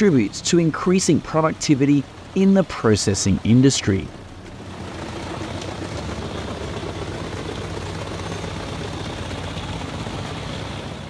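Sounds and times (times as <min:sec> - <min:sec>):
wood chipper running: 0:04.2 - 0:11.0.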